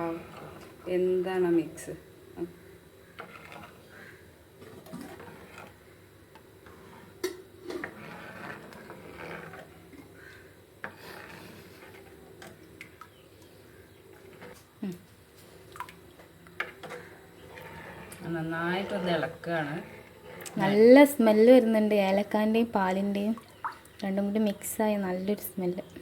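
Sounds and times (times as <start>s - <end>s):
spoon scraping around a pan: 0.0s - 1.4s, 3.1s - 12.7s, 13.7s - 14.6s, 16.5s - 22.3s.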